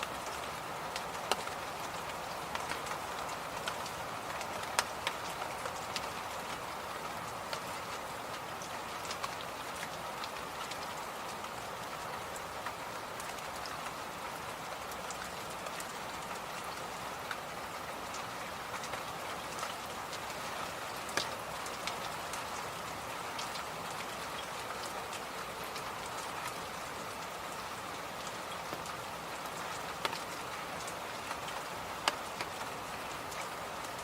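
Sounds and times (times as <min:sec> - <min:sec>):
faint clicks and ticks: 0:00.2 - 0:06.6, 0:21.1 - 0:26.6, 0:28.2 - 0:34.0.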